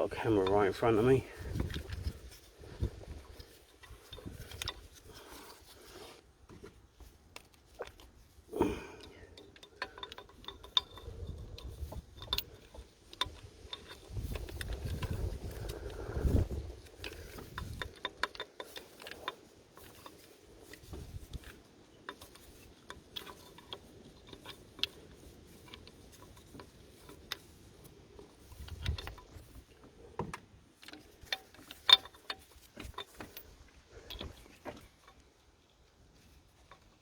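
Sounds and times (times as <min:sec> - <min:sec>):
metal clicks and taps of tools: 0:08.8 - 0:16.0, 0:30.2 - 0:35.3.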